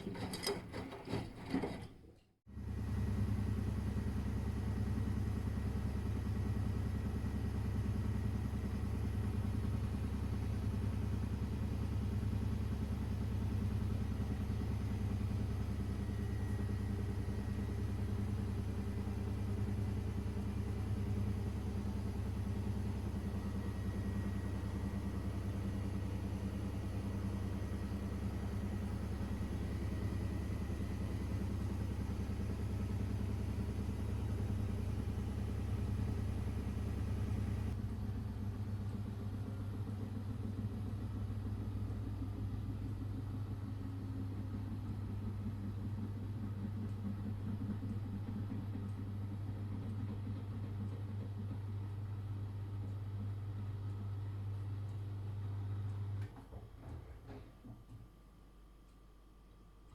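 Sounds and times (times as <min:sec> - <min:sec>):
washing machine humming: 0:02.6 - 0:42.3.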